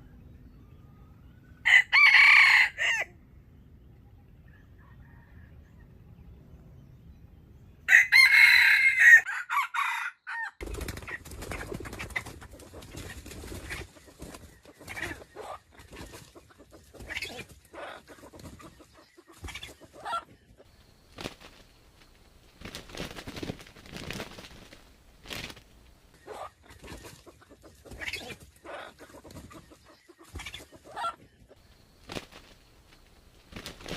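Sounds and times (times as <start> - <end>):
rooster crowing: 1.6 - 3.1, 7.9 - 10.6
chicken clucking: 10.7 - 33.9.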